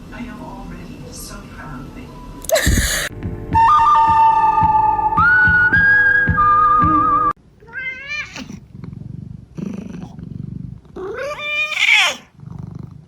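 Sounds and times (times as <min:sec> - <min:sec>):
flute-like tune: 0:03.4 - 0:07.4
cat meowing: 0:07.6 - 0:08.6, 0:11.0 - 0:12.3.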